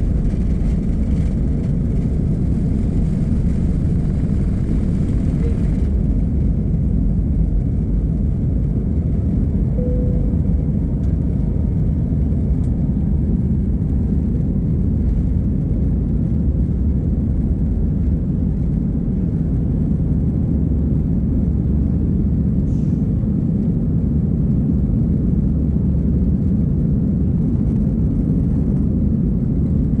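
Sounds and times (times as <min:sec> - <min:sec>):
jet engines rumbling: 0:00.0 - 0:30.0
short faint tone: 0:09.8 - 0:11.7.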